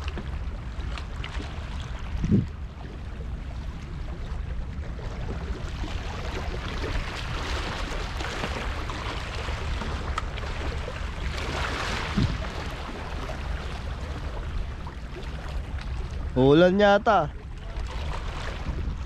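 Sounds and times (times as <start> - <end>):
wind rumbling on microphone: 0.0 - 16.5, 17.3 - 19.0.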